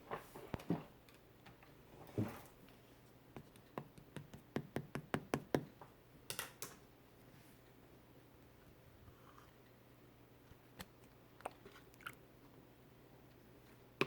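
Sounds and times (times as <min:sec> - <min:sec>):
hands tapping clay on table: 0:03.5 - 0:05.7.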